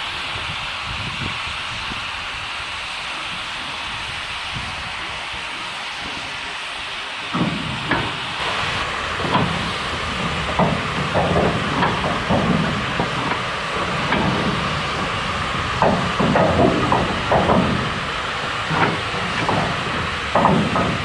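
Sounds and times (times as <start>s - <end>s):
steam locomotive hissing: 0.0s - 21.0s
metal clanks and knocks: 7.4s - 21.0s.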